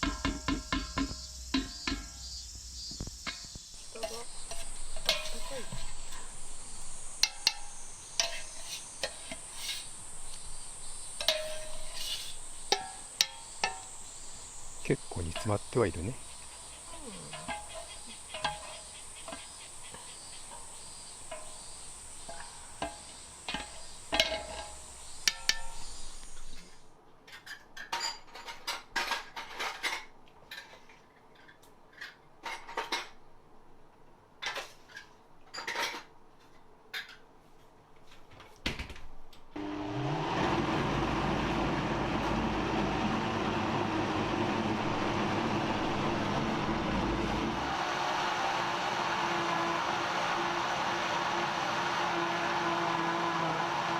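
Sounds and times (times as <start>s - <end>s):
metal utensil knocking on pot: 0.0s - 2.1s
insect chorus: 0.0s - 26.9s
mechanical drone: 39.8s - 50.9s.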